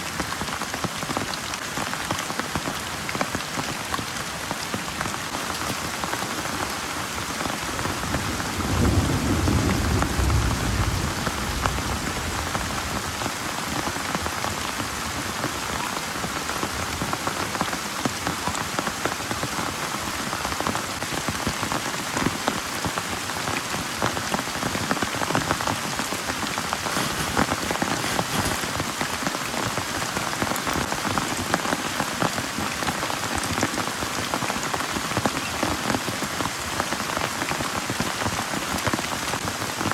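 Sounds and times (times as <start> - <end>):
heavy rain pouring: 0.0 - 39.9
low roll of thunder: 7.8 - 13.1.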